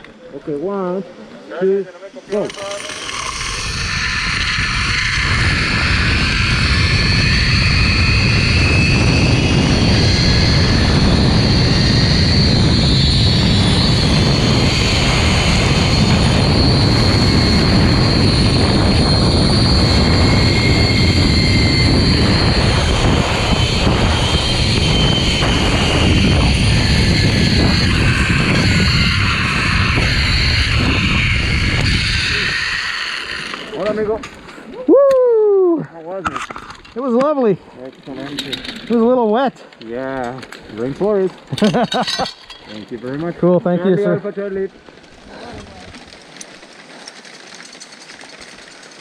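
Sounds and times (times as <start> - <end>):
zipline pulleys whining on cable: 0.6 - 39.3, 40.3 - 49.0
wind rushing on microphone: 2.2 - 35.0.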